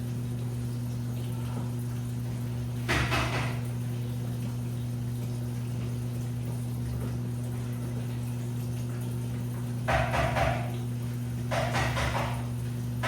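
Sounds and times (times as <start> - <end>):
washing machine motor hum: 0.0 - 13.0.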